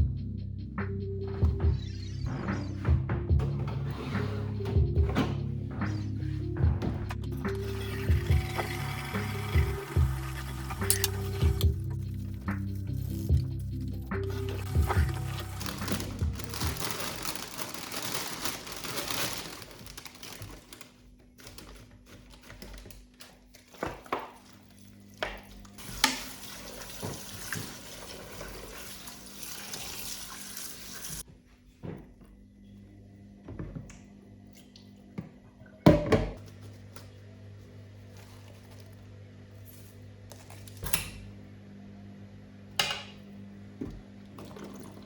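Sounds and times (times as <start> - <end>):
water running: 4.5 - 21.6, 23.5 - 31.3, 43.8 - 45.0
household things clinking: 10.8 - 12.3, 12.9 - 22.9.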